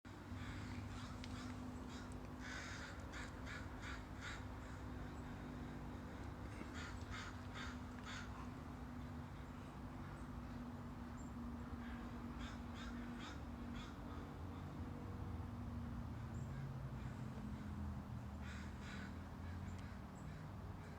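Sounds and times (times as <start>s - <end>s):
crow cawing: 0.4s - 5.8s, 6.5s - 8.6s, 11.8s - 14.3s, 18.4s - 20.9s.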